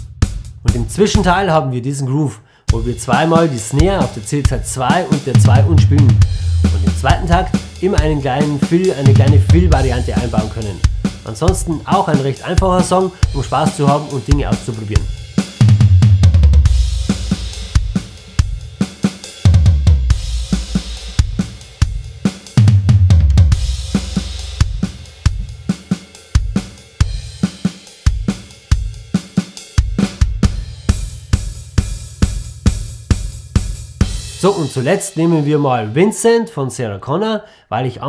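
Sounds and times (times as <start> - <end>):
drum kit playing a groove: 0.0 - 1.5, 2.7 - 35.8
crash cymbal accents: 6.1 - 9.2, 16.6 - 19.4.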